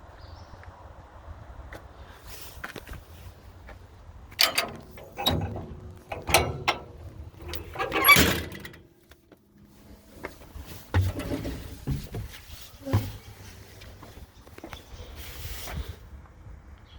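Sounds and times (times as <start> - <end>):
metal panels knocking and rattling: 4.4 - 9.0, 10.5 - 13.3.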